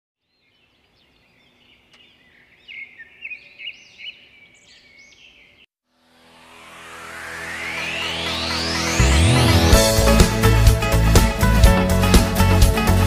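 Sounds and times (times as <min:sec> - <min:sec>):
birds chirping: 0:00.2 - 0:05.7.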